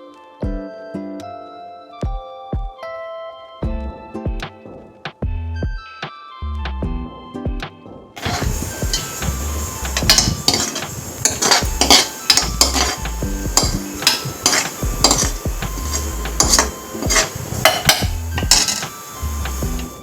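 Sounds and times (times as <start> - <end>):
metal spoon scraping a pot: 8.2 - 19.0.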